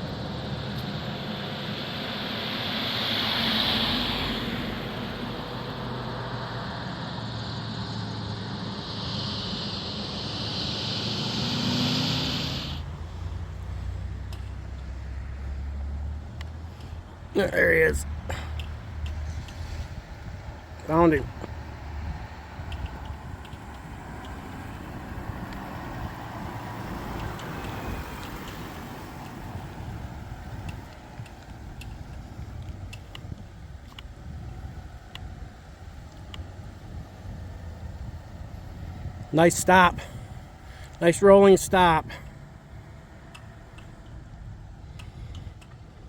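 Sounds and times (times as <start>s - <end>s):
steady high hiss: 0.0s - 14.0s
low rumble: 0.0s - 39.3s
motor vehicle running: 0.0s - 46.0s.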